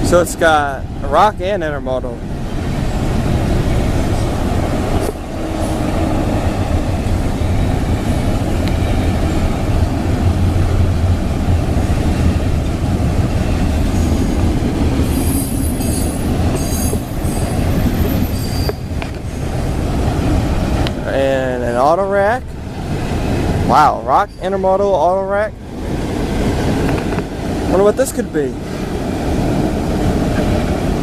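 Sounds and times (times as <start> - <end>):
steel wheels rumbling on rail: 0.0 - 31.0
wheel flanges squealing: 2.6 - 20.3, 23.7 - 25.4.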